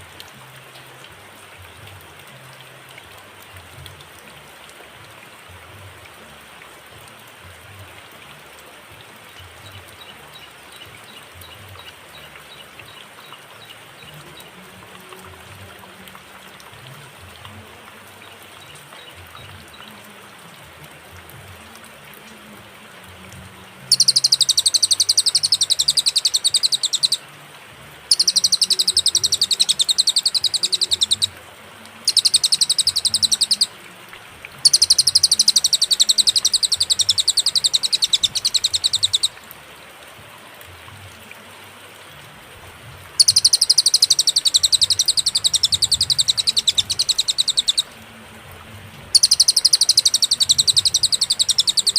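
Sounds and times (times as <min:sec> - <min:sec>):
faint low hiss: 0:00.0 - 0:51.9
songbird singing fast high notes: 0:23.8 - 0:27.2, 0:28.1 - 0:31.4, 0:32.1 - 0:33.8, 0:34.6 - 0:39.4, 0:43.2 - 0:47.9, 0:49.1 - 0:51.9.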